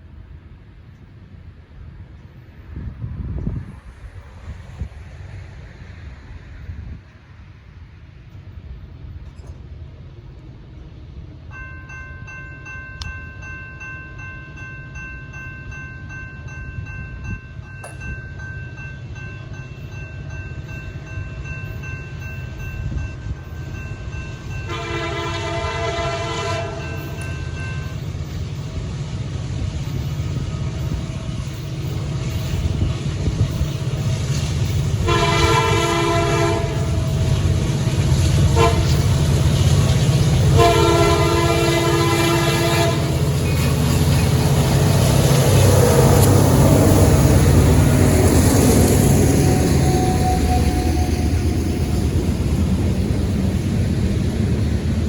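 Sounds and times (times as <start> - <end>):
diesel locomotive engines rumbling: 0.0 - 55.0
locomotive air horn blasts: 24.7 - 27.2, 35.0 - 37.3, 38.5 - 39.2, 40.5 - 43.2, 49.1 - 52.0.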